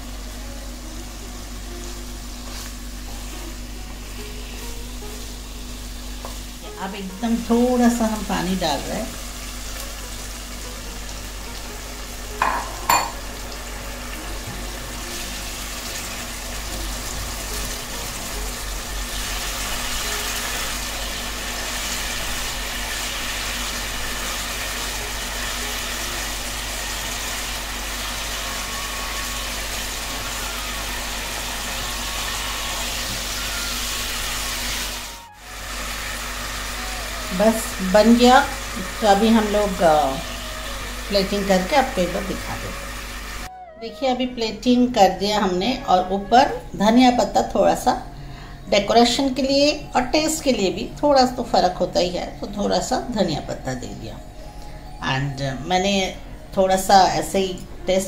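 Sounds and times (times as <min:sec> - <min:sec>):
vegetables sizzling in a pan: 0:00.0 - 0:43.5.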